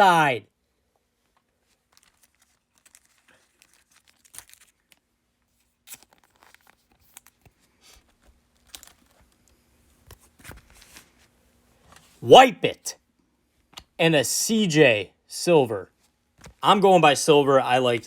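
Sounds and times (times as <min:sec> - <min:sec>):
trading cards handled: 0:01.3 - 0:11.3.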